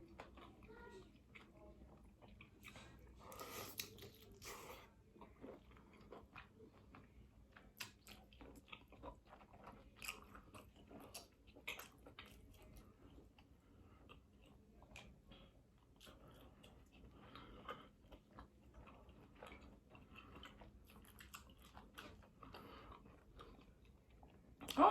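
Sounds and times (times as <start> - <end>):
chewing: 0.0 - 24.9
lip smacks: 2.4 - 4.8.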